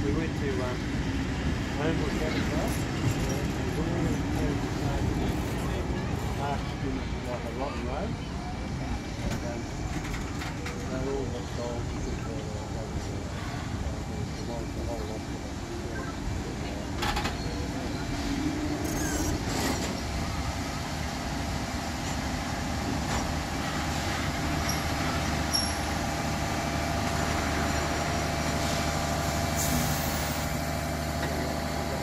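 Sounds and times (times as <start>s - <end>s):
train carriages rolling on rails: 0.0s - 32.0s
faint high squeals: 17.3s - 19.9s.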